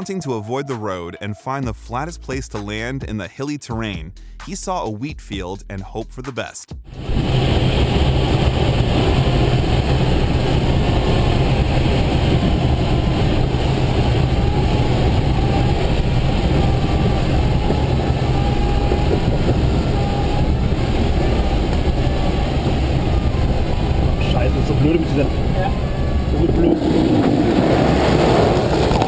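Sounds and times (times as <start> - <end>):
aircraft cockpit rumble: 6.9 - 29.0.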